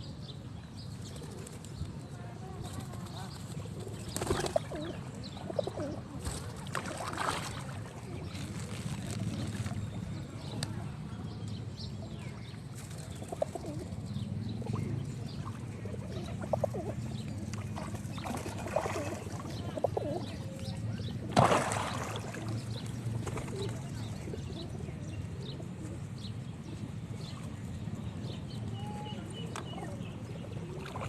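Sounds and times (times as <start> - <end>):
pigeons cooing: 3.6 - 6.6, 13.0 - 21.4, 22.0 - 26.0.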